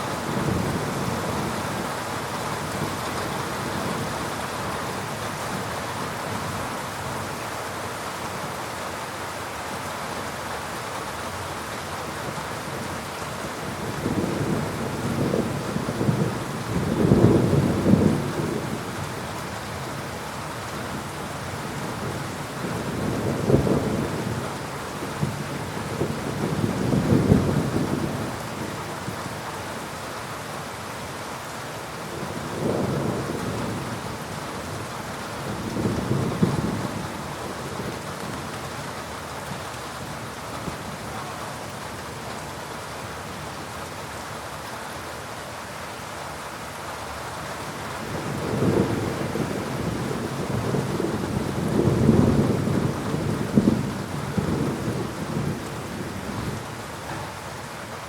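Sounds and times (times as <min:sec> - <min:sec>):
heavy rain: 0:00.0 - 0:58.0
rolling thunder: 0:13.9 - 0:18.9, 0:35.5 - 0:38.0, 0:48.0 - 0:57.3.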